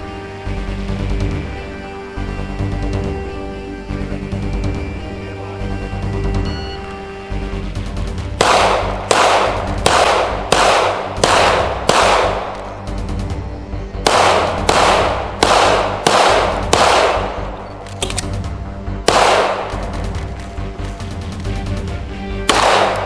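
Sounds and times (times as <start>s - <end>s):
background music: 0.0s - 23.0s
gunshots with echoing tail: 8.3s - 12.8s, 14.0s - 17.6s, 19.0s - 20.2s, 22.5s - 23.0s.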